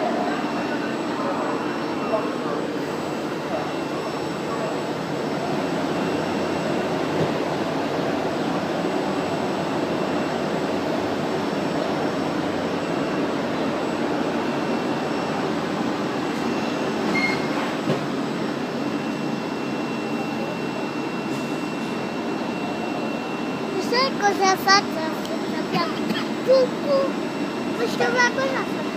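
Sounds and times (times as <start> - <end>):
train rumbling at station: 0.0 - 28.9
short high beep: 16.4 - 17.7.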